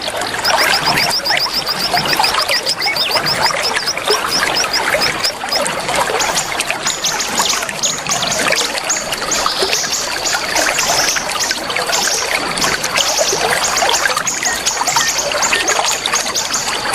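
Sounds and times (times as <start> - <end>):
water trickling: 0.0 - 16.8
songbirds chirping and singing: 0.4 - 5.6.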